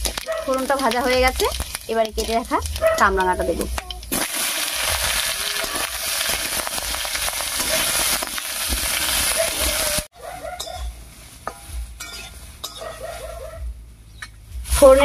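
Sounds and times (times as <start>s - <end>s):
metal spatula stirring: 0.0s - 9.9s, 10.6s - 13.2s
fruit sizzling in hot oil: 0.0s - 10.1s.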